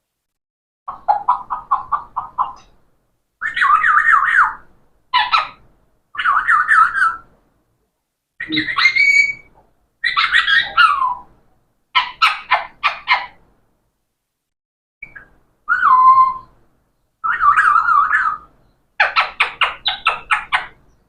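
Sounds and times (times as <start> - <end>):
parrot whistling and squawking: 3.4 - 4.6, 5.2 - 5.6, 6.2 - 7.2, 8.4 - 11.3, 15.0 - 16.5, 17.2 - 20.8.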